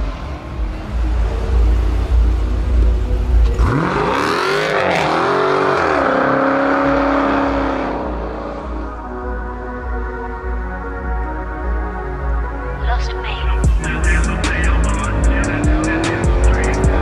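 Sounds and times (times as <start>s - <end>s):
car engine revving: 0.0s - 10.0s, 13.5s - 17.0s.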